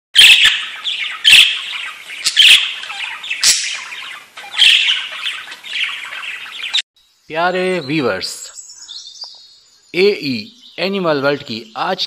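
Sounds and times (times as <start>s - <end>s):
harsh bird squawks: 0.2s - 6.8s
soft bird calls: 0.2s - 12.0s.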